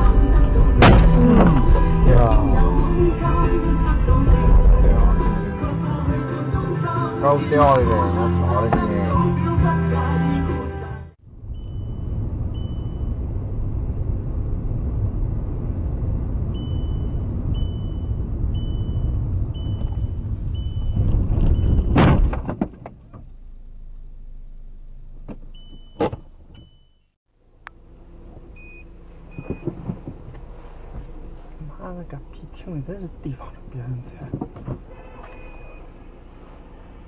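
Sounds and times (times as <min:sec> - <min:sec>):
car road and engine noise: 0:00.0 - 0:37.0
car crash impact: 0:00.6 - 0:02.0, 0:20.9 - 0:23.1
high electronic beep: 0:11.5 - 0:13.2.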